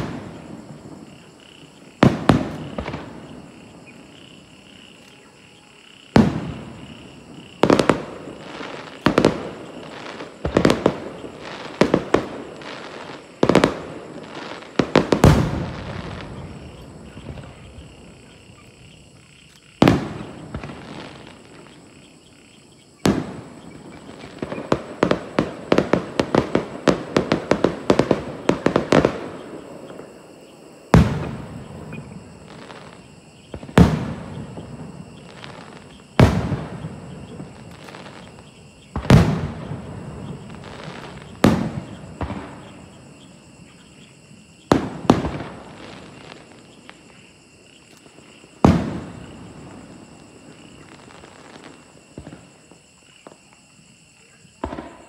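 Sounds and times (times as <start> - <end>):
firework bangs with echo: 0.0 - 1.2, 2.0 - 3.7, 6.1 - 18.2, 19.8 - 21.6, 23.0 - 30.1, 30.9 - 43.0, 44.7 - 46.4, 48.6 - 49.9, 54.6 - 55.0
firework pops and crackles: 2.0 - 3.6, 6.1 - 17.9, 19.6 - 21.8, 23.0 - 30.2, 30.9 - 43.0, 44.7 - 47.2, 47.8 - 53.7, 54.6 - 55.0.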